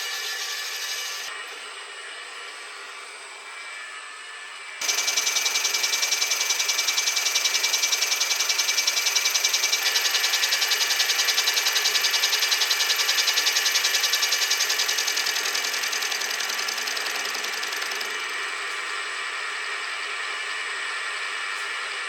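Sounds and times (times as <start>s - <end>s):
machine tool cutting metal: 0.0s - 1.3s, 4.8s - 18.8s.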